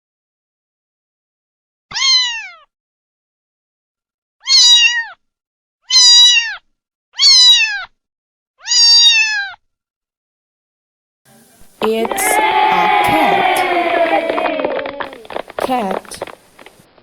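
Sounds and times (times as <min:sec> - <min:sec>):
cat meowing: 0:01.9 - 0:02.6, 0:04.4 - 0:05.2, 0:05.9 - 0:06.6, 0:07.2 - 0:07.9, 0:08.6 - 0:09.6, 0:11.8 - 0:15.4.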